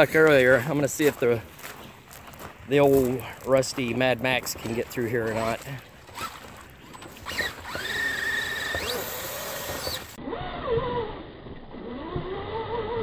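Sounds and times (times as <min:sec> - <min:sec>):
electric motor whine: 0:05.3 - 0:13.0.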